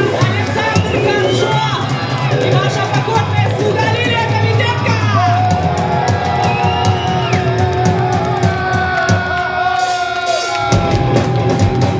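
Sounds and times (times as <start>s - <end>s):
drum and cymbal hits: 0.0s - 11.9s
live rock band playing: 0.0s - 11.9s.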